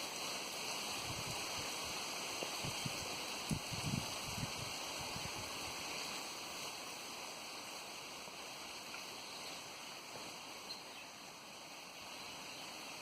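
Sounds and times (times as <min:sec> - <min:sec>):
wind rushing: 0:02.6 - 0:05.8.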